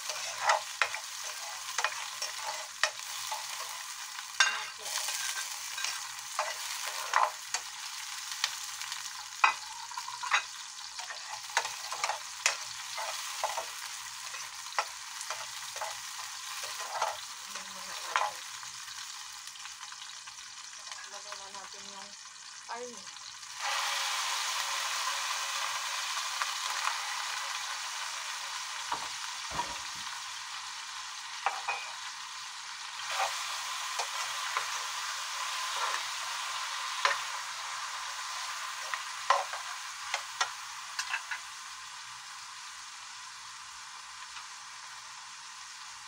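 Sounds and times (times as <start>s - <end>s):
metal spatula scraping a wok: 0.0s - 7.7s, 9.2s - 18.5s, 31.4s - 32.0s, 33.0s - 36.2s, 41.0s - 41.4s
fish sizzling in hot oil: 0.0s - 46.0s.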